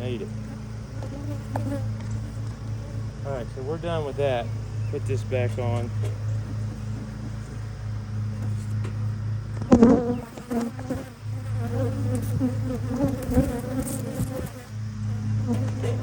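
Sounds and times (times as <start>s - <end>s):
honeybees buzzing: 0.0s - 16.0s
bee buzzing close: 0.3s - 3.2s, 9.6s - 16.0s.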